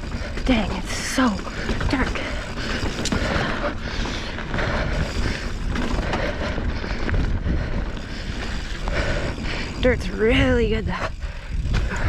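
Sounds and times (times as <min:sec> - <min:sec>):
bike rattling: 0:00.0 - 0:12.0
bike tyres rolling over dirt: 0:00.0 - 0:12.0.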